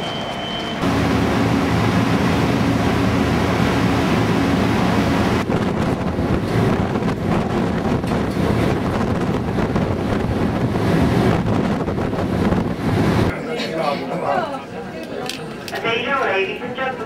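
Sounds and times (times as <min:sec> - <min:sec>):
ship engines droning: 0:00.0 - 0:13.3
wind blowing on microphone: 0:05.3 - 0:13.3.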